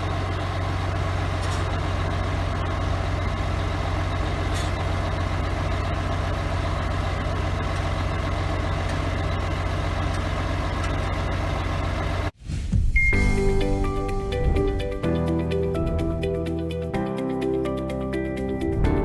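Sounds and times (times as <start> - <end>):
truck diesel engine idling: 0.0 - 12.4.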